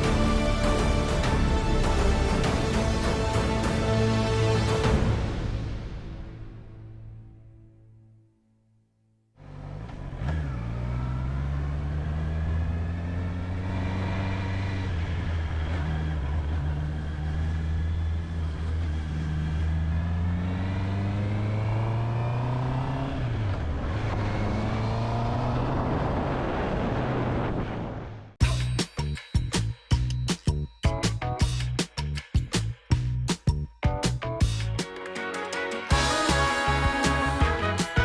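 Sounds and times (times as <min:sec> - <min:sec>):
motorcycle engine accelerating: 0:09.4 - 0:28.3.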